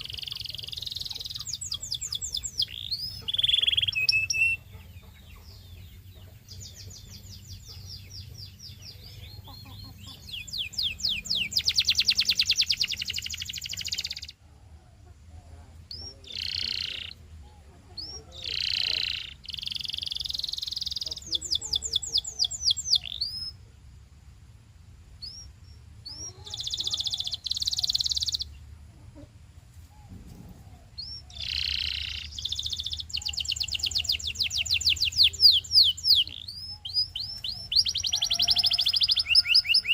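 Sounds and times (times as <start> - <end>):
canary singing trills: 0.0 - 23.7, 25.1 - 29.3, 29.9 - 39.9
faint low hum: 0.0 - 39.9.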